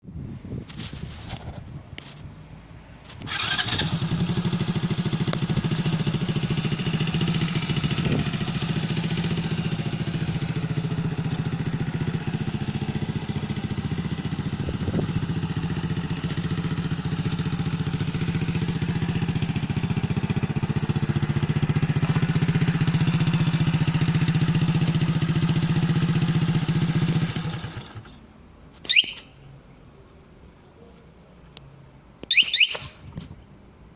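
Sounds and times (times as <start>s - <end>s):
motorcycle engine starting and idling: 3.0s - 29.6s
short high alarm chirp: 28.8s - 29.5s, 32.2s - 33.0s.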